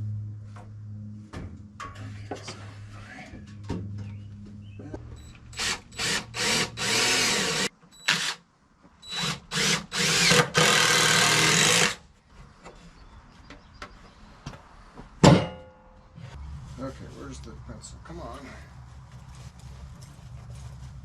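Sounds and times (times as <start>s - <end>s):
power drill driving screws: 5.5s - 8.4s, 9.0s - 12.0s.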